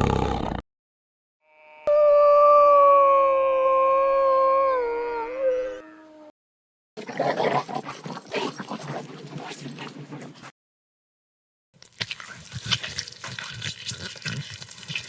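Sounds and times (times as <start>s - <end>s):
dog howling: 1.8s - 6.3s.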